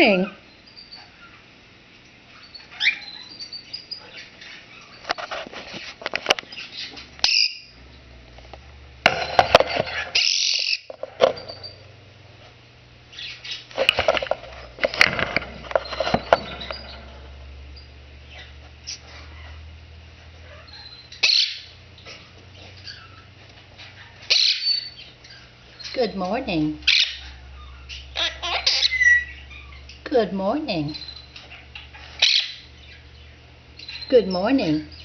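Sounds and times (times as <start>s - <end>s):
parrot chirping and chattering: 0.0s - 5.4s, 6.4s - 7.9s, 9.3s - 11.8s, 13.1s - 19.7s, 20.4s - 30.1s, 30.8s - 35.0s
parrot squawk: 6.8s - 7.7s, 9.9s - 10.9s, 20.5s - 21.7s, 24.0s - 25.5s, 26.9s - 30.0s.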